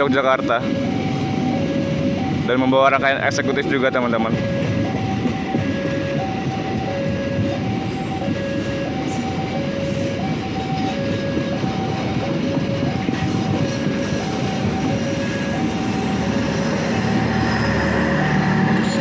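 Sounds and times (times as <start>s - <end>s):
level-crossing two-tone alarm: 0.0s - 19.0s
train wheels rumbling on rails: 0.0s - 19.0s.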